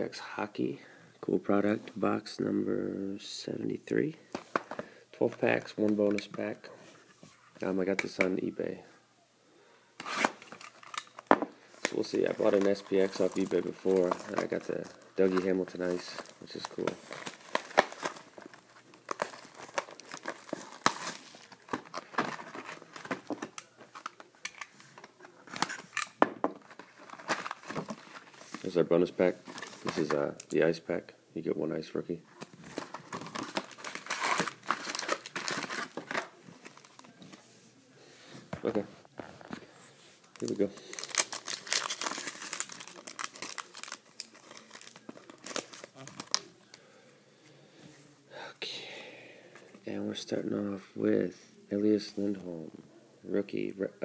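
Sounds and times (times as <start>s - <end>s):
plastic packaging crinkling and tearing: 10.0s - 30.2s, 32.4s - 37.2s, 40.2s - 46.6s.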